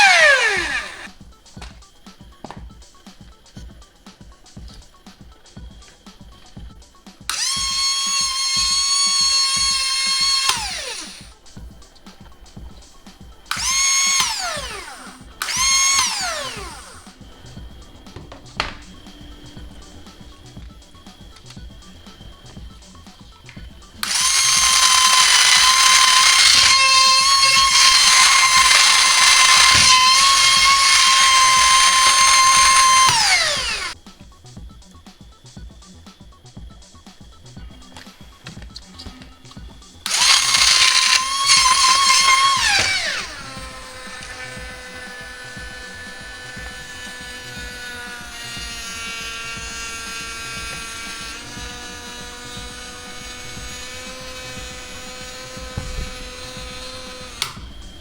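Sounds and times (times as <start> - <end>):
electric motor whining: 0.0 - 58.0.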